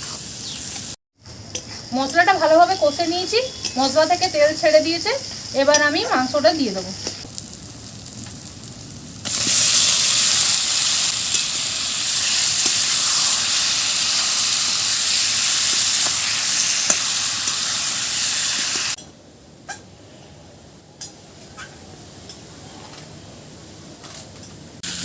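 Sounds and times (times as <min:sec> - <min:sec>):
chicken sizzling in hot oil: 0:00.0 - 0:19.0.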